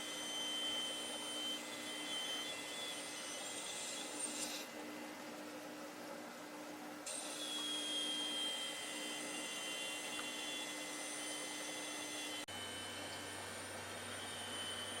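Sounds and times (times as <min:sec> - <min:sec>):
air blower running: 0:00.0 - 0:02.2, 0:07.1 - 0:15.0.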